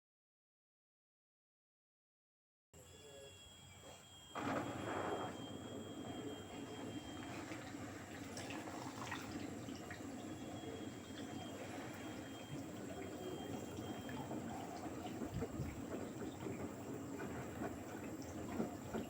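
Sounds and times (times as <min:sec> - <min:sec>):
water splashing in washing machine: 0:04.4 - 0:19.0.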